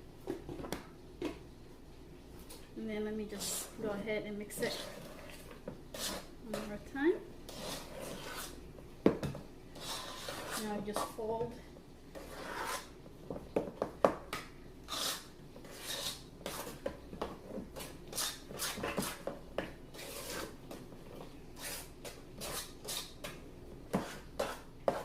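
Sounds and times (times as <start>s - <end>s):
utensil scraping in mixing bowl: 3.3s - 8.7s, 9.7s - 11.3s, 12.1s - 13.0s, 14.8s - 16.9s, 17.6s - 19.3s, 19.9s - 20.8s, 21.6s - 25.0s.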